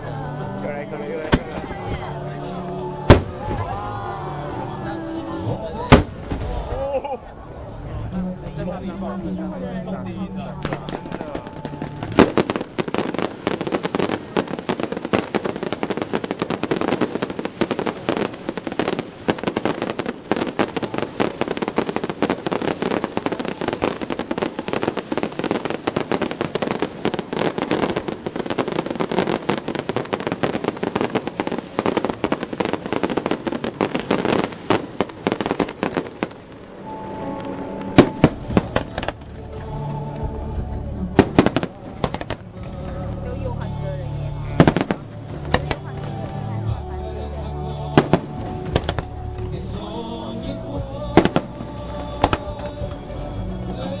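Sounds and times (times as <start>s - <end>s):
fireworks crackling: 0.0s - 54.0s
music: 0.0s - 54.0s
loud firework bang: 3.1s - 3.8s, 5.8s - 6.8s.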